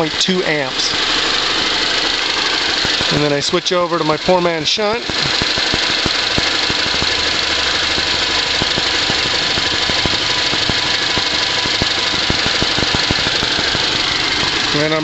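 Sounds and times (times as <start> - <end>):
car engine idling with light ticks: 0.2 - 15.0.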